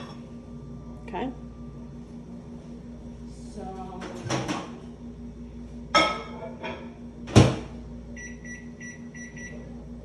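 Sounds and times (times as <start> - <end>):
knocks on microwave: 7.2 - 7.8.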